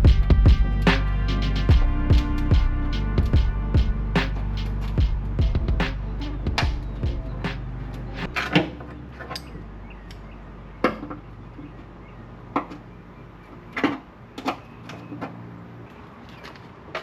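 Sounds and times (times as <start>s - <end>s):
low steady hum: 0.0s - 15.9s.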